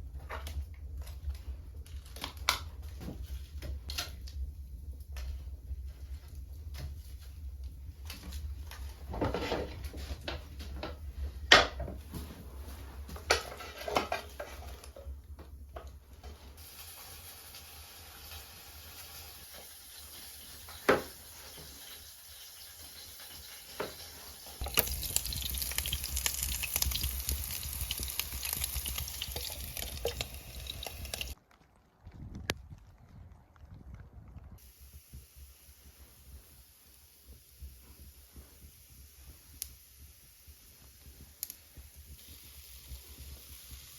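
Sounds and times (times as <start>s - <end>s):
pots and utensils clinking: 13.2s - 15.0s, 24.6s - 31.4s
food sizzling and crackling: 16.6s - 31.4s, 34.6s - 43.9s.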